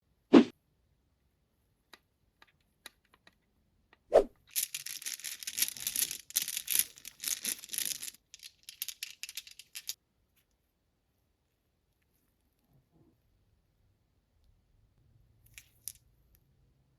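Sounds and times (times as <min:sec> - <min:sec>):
marbles clattering down a run: 0:04.6 - 0:10.0.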